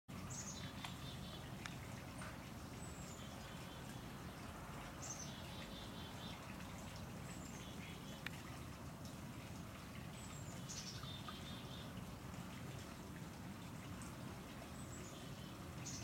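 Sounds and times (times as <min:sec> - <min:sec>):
faint clicks: 0:08.2 - 0:08.4.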